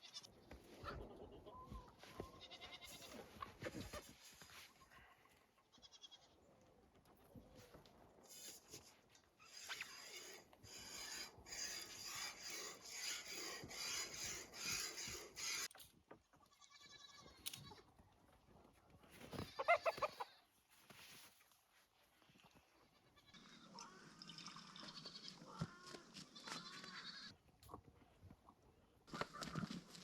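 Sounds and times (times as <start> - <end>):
goat bleating: 2.3 - 3.2, 16.5 - 17.8, 19.5 - 20.4, 24.8 - 27.4
rhythmic rasping rubbing: 9.6 - 15.7.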